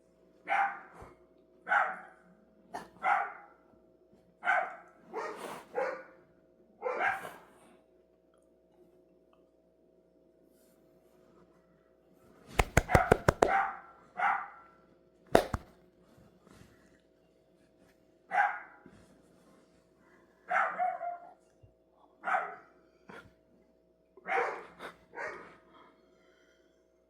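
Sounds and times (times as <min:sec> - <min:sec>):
dog barking: 0:00.5 - 0:00.9, 0:01.7 - 0:02.2, 0:02.8 - 0:03.5, 0:04.4 - 0:06.2, 0:06.8 - 0:07.2, 0:14.2 - 0:14.6, 0:18.3 - 0:18.8, 0:20.5 - 0:21.3, 0:22.2 - 0:22.7, 0:24.2 - 0:25.5
sharp knocks: 0:12.6 - 0:13.6, 0:15.4 - 0:15.7.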